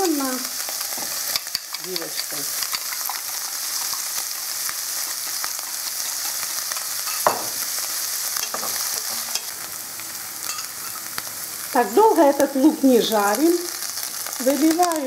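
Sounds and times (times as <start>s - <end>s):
onions sizzling in a frying pan: 0.0s - 15.0s
utensil scraping a pan: 0.9s - 4.4s.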